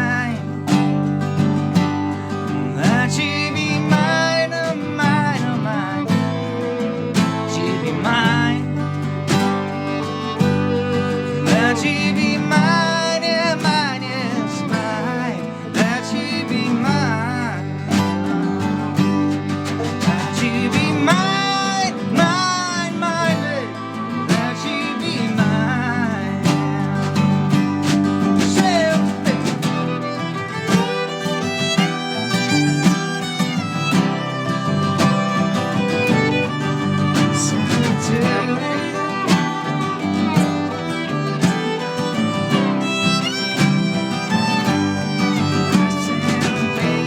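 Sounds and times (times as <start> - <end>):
acoustic guitar strumming: 0.0 - 47.0
bowed fiddle melody: 0.0 - 47.0
melodic lead notes with vibrato: 28.6 - 47.0.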